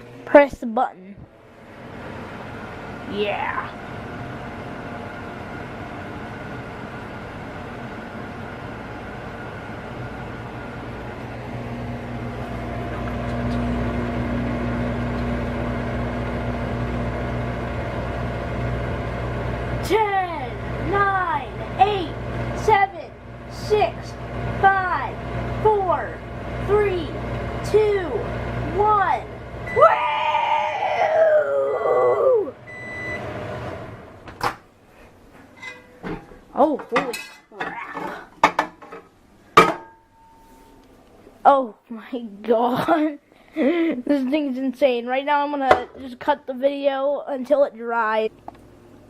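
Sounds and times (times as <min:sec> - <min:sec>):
microwave oven humming: 0:00.0 - 0:49.0
microwave beep: 0:29.6 - 0:29.9, 0:32.6 - 0:33.4
excited woo shout: 0:29.7 - 0:32.6.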